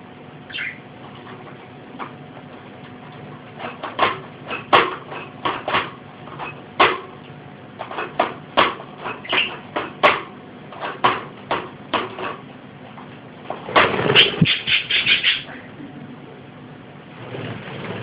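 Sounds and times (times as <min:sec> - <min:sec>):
budgerigar chirping: 0:00.5 - 0:00.8, 0:09.2 - 0:09.6, 0:14.2 - 0:15.6.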